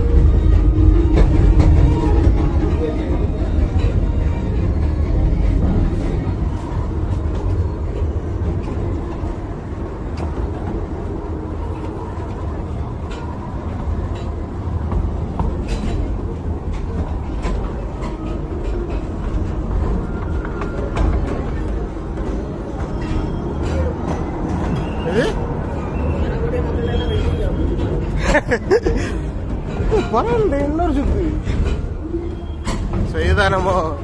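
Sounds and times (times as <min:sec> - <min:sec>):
train low rumble: 0:00.0 - 0:34.0.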